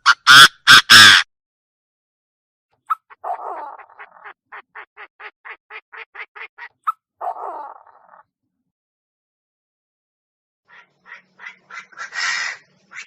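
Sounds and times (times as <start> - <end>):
bird harsh rasping call: 0.0 - 1.3, 2.9 - 8.2, 10.7 - 13.0.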